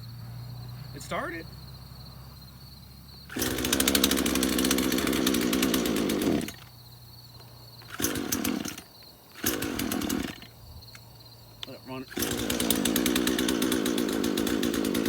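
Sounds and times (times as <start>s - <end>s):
chainsaw engine sputtering: 3.3s - 6.8s, 7.8s - 10.6s, 11.6s - 15.0s.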